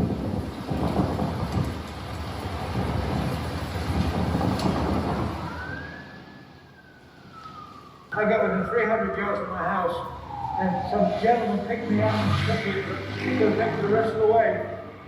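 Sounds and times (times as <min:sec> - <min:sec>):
emergency vehicle siren: 0:03.1 - 0:15.0
loud dense rumbling: 0:10.3 - 0:14.8.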